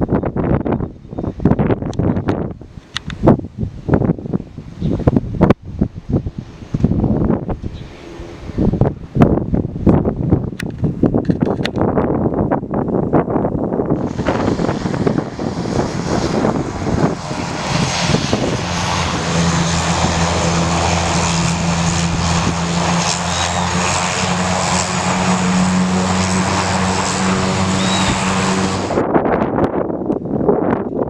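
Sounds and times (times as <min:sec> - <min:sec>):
aircraft engine running: 0:00.0 - 0:29.3
low droning hum: 0:02.5 - 0:10.5, 0:13.8 - 0:29.1.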